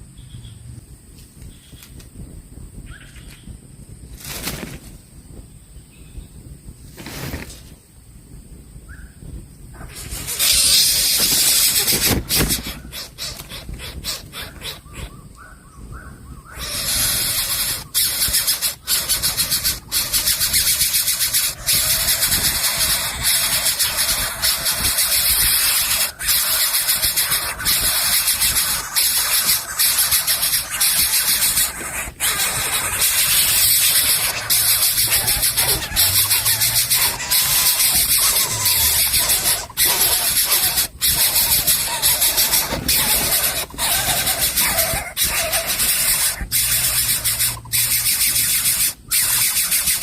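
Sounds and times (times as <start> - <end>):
bird chick hissing: 9.8 - 15.2, 16.5 - 50.0.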